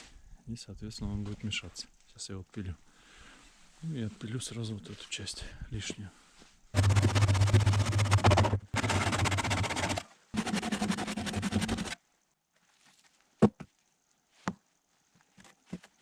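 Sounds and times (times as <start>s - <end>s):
hand saw cutting log: 6.8s - 12.0s.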